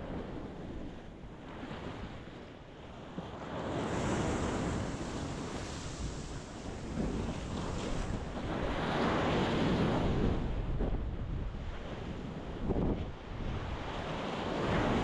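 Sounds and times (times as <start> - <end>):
waves breaking on rocky shore: 3.3 - 15.0.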